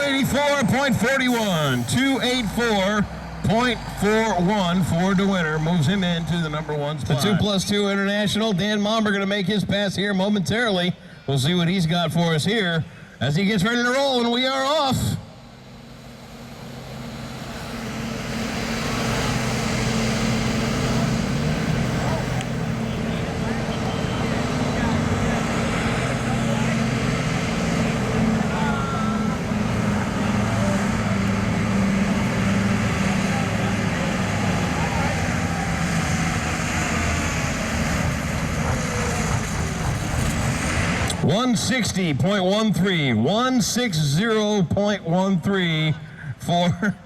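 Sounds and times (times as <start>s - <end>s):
tractor diesel engine under load: 0.0s - 47.0s.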